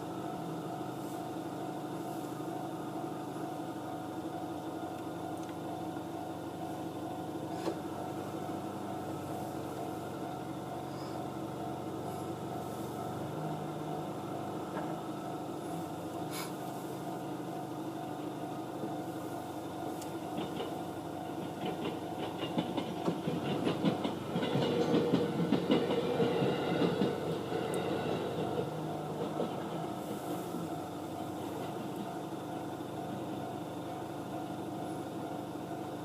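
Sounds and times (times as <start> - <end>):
electric train passing: 5.8 - 36.0
wheels clacking over rail joints: 20.0 - 32.4.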